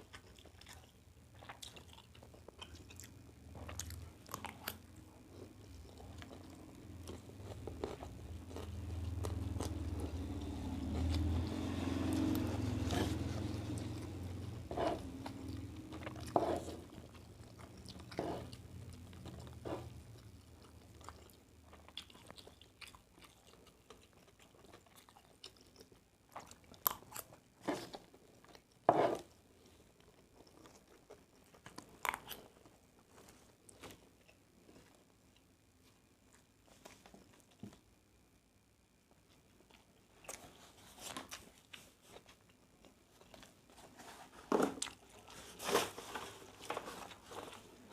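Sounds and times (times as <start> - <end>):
chewing and crunching: 0.0 - 35.5.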